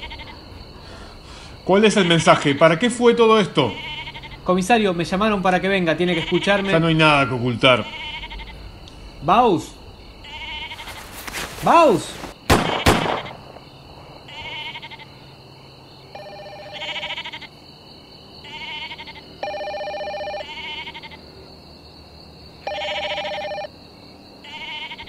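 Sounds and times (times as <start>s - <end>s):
phone trilling rings: 16.2s - 17.4s, 18.6s - 21.1s, 22.6s - 23.7s.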